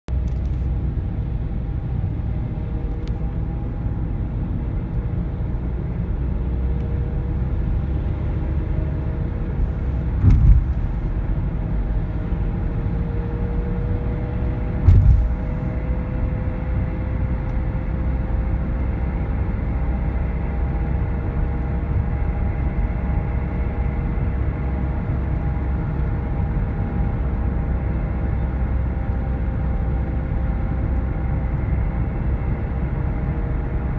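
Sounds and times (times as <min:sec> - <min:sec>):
car running low rumble: 0:00.1 - 0:33.9
short thumps: 0:09.6 - 0:11.1, 0:14.8 - 0:15.7.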